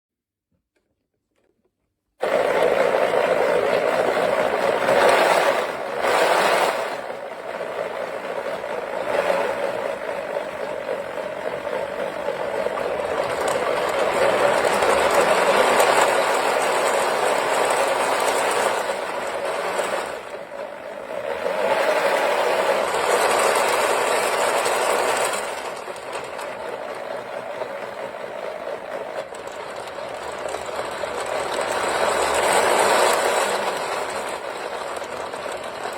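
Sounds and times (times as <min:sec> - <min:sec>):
wooden engine model whirring clatter: 0:00.7 - 0:35.9.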